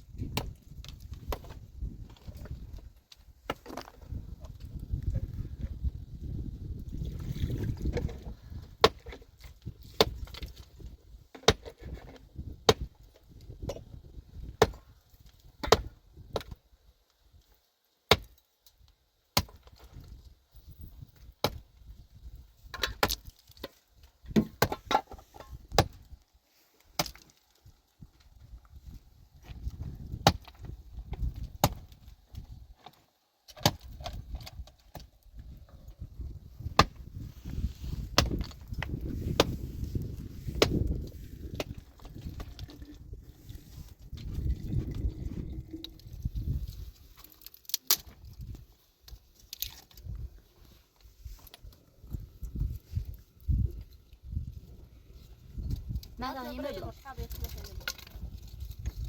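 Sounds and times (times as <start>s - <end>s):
low rumble: 42.6s - 46.6s.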